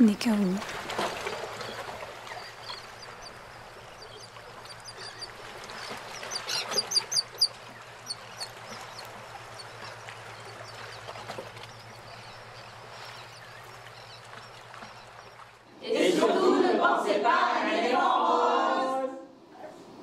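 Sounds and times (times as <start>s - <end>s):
birds chirping: 1.2s - 15.6s.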